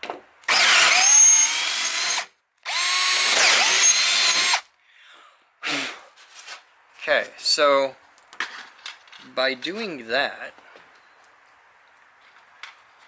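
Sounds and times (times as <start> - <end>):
power drill boring into wood: 0.5 - 4.6.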